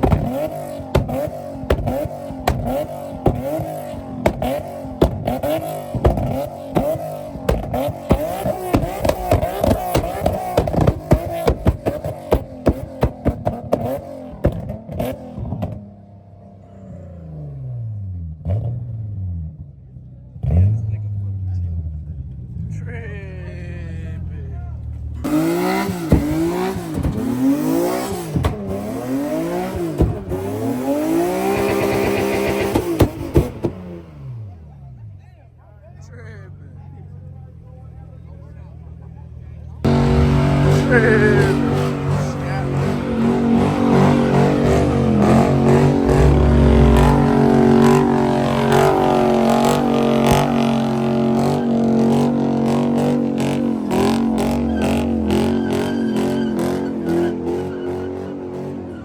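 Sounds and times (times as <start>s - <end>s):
exhaust cracks: 0.0s - 15.8s, 24.5s - 34.6s, 39.8s - 57.8s
car engine revving: 0.0s - 23.0s, 24.0s - 35.2s, 37.8s - 59.0s.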